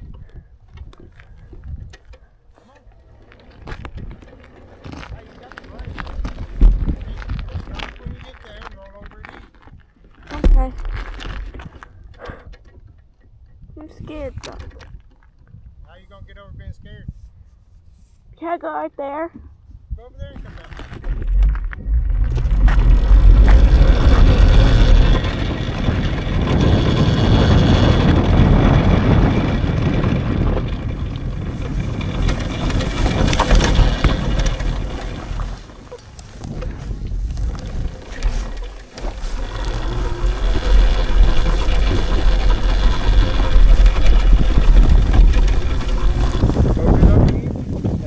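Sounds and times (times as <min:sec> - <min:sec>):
wind buffeting microphone: 0:00.0 - 0:18.4, 0:19.3 - 0:48.0
low rumble: 0:20.3 - 0:48.0.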